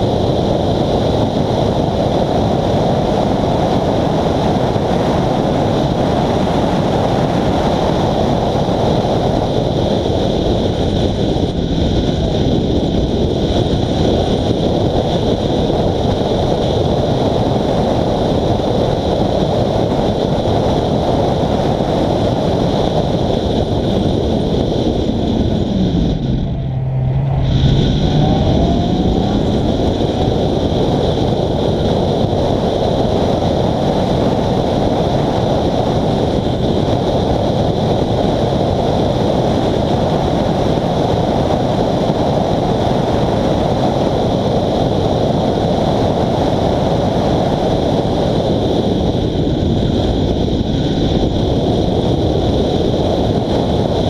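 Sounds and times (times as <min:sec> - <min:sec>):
road and wind noise: 0:00.0 - 0:54.0
car engine running: 0:22.3 - 0:36.7.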